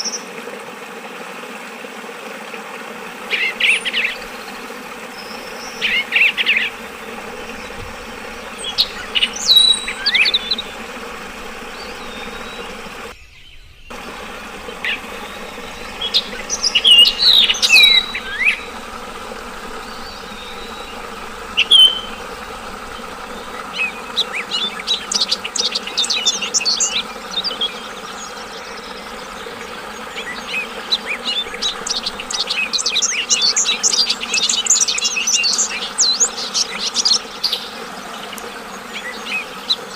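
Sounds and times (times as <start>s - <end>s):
flowing water: 0.0s - 13.2s, 13.9s - 39.9s
bird chattering: 3.4s - 13.1s, 13.9s - 27.7s
bird singing whistled notes: 8.6s - 13.9s, 14.8s - 27.8s.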